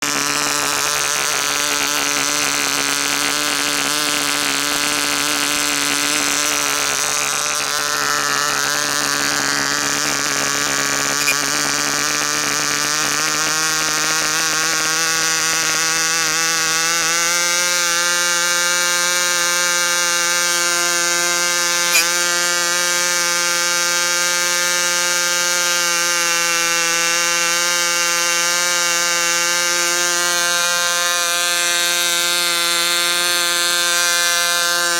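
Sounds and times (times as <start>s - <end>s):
model engine running: 0.0s - 34.9s.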